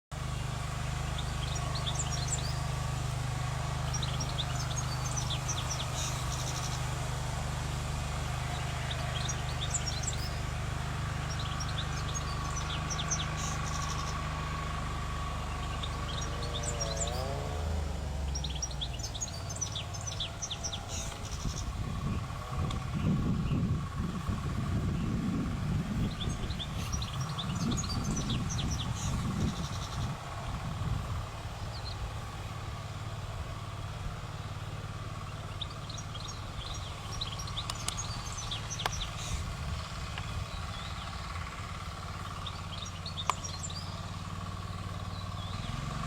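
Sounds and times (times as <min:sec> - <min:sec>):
bird twittering song: 0:00.2 - 0:46.0.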